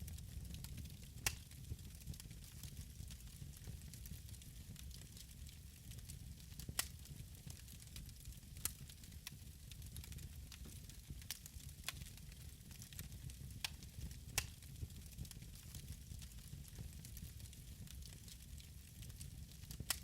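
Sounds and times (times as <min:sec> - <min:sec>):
wood fire crackling: 0:00.0 - 0:20.0
sharp pops of fire: 0:00.6 - 0:01.5, 0:13.6 - 0:15.0, 0:19.6 - 0:20.0.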